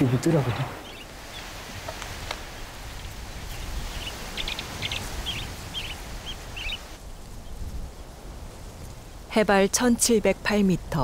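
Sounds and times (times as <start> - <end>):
small bird chirping: 0.6 - 6.9.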